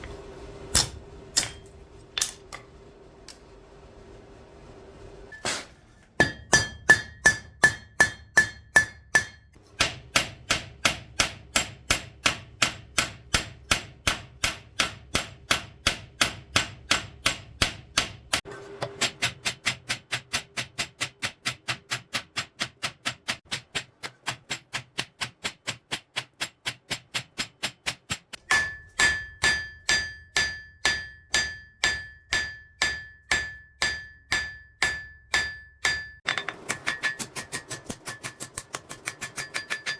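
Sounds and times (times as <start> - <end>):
hammer striking hot steel on anvil: 0.7 - 2.6, 5.3 - 39.9
anvil ringing: 6.2 - 15.4, 28.4 - 39.9.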